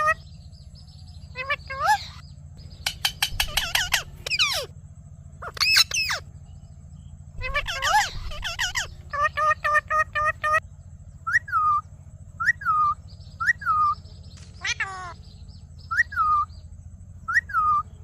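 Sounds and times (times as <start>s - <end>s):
parrot calling: 0.0s - 0.2s, 1.3s - 4.8s, 5.4s - 6.3s, 7.4s - 10.6s, 11.2s - 11.8s, 12.4s - 14.0s, 14.6s - 15.3s, 15.9s - 16.5s, 17.3s - 18.0s.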